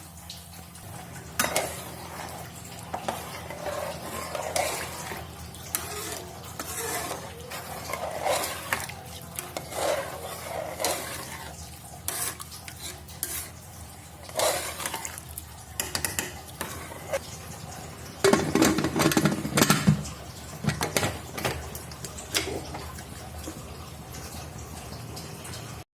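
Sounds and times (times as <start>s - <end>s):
metal utensil scraping a pot: 1.2s - 17.2s.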